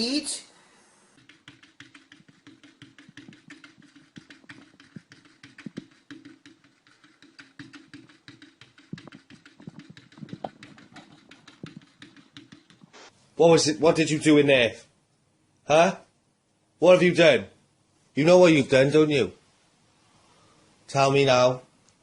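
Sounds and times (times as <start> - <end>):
steady low hum: 0.5 - 16.8
quick clicks and taps: 1.2 - 13.0.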